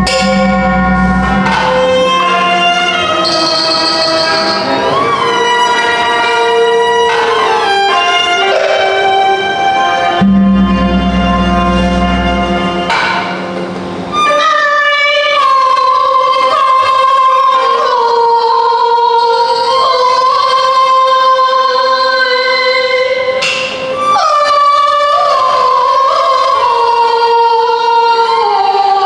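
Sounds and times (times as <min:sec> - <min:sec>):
sharp percussion clack: 0:00.0 - 0:09.3, 0:10.2 - 0:14.1
opera melody of sliding notes: 0:00.0 - 0:15.2.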